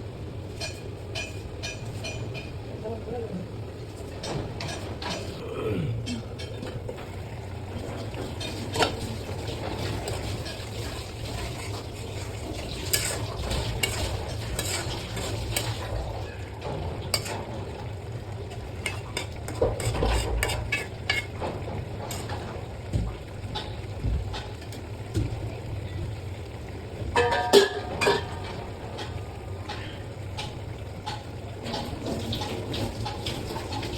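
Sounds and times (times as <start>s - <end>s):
food sizzling: 0.0s - 33.9s
spatula scraping in pan: 8.3s - 16.4s, 17.0s - 17.6s, 18.5s - 22.4s
spatula clinking against pan: 13.8s - 15.7s.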